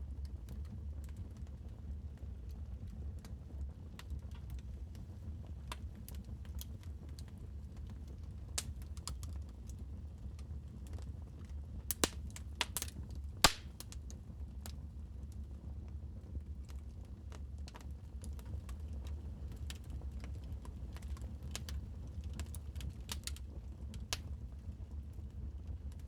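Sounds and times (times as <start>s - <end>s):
wood fire crackling: 0.2s - 15.6s, 16.5s - 26.0s.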